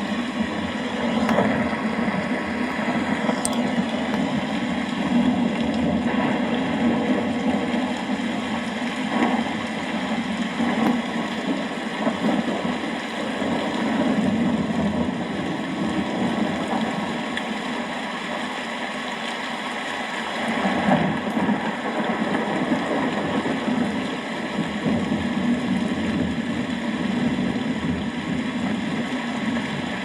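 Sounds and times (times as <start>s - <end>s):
distant thunder rumble: 0.0s - 17.4s
steady rain: 0.0s - 30.0s.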